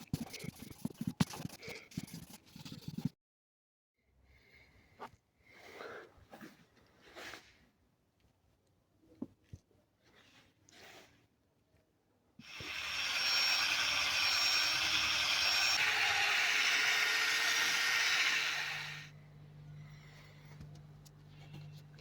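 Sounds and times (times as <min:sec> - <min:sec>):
compressed-air tool hissing: 0:12.4 - 0:19.1.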